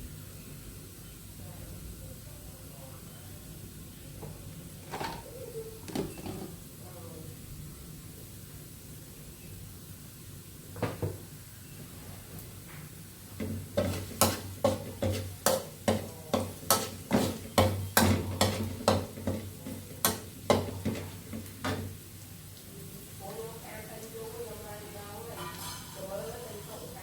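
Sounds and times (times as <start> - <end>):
utensil knocking in cooking pot: 13.4 - 21.9.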